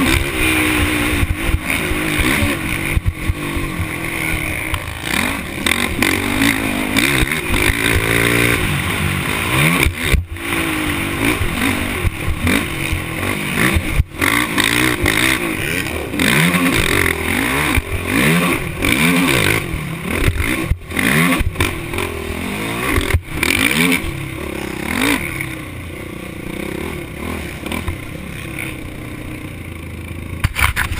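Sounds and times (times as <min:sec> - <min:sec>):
motorbike engine revving: 0:00.0 - 0:30.9.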